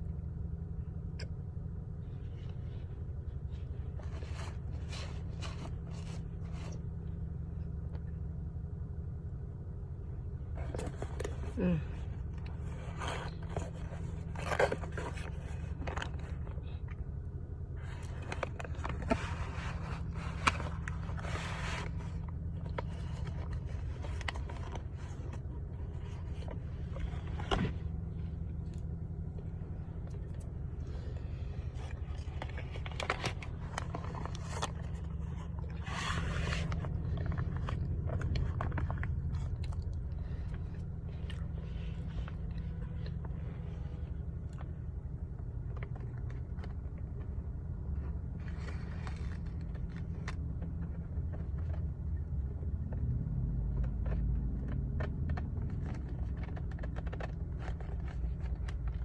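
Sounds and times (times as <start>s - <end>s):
steady low hum: 0.0s - 59.0s
crunchy chewing: 10.5s - 17.2s, 17.8s - 52.7s, 53.5s - 59.0s.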